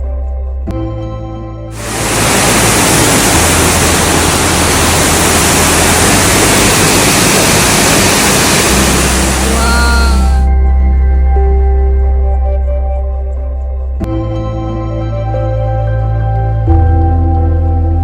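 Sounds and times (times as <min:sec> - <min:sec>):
soft ambient music: 0:00.0 - 0:18.0
waterfall rushing: 0:01.8 - 0:10.5.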